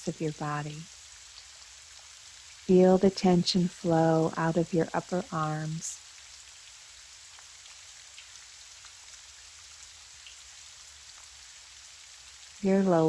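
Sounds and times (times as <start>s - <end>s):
gentle rain falling: 0.0s - 13.0s
raindrop ticks: 4.3s - 10.4s.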